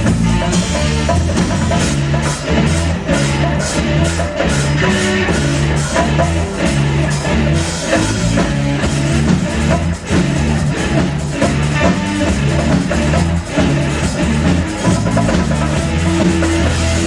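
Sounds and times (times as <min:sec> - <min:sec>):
instrumental rock music: 0:00.0 - 0:17.0.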